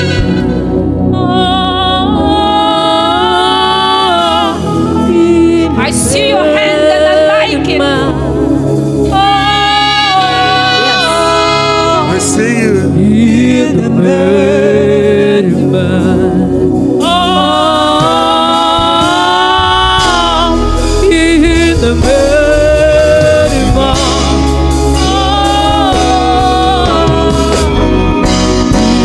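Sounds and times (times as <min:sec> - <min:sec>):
band with bass and keyboard: 0:00.0 - 0:29.0
person singing long notes: 0:09.1 - 0:29.0.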